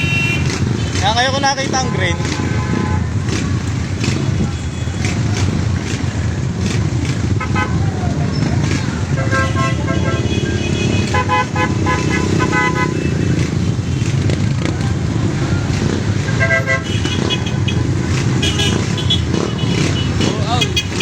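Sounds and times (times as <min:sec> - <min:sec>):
motorcycle engines rumbling: 0:00.0 - 0:21.0
horns beeping short toots: 0:16.2 - 0:21.0.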